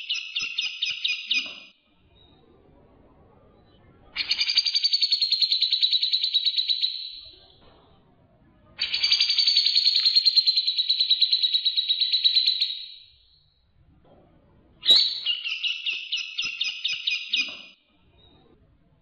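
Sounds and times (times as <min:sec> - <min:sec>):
songbird chattering: 0:14.8 - 0:17.7
songbird trilling: 0:14.8 - 0:17.7.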